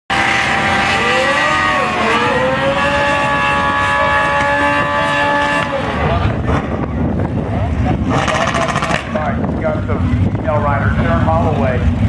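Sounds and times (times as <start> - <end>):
motorcycle engine at high revs: 0.1 - 6.9, 7.8 - 9.4.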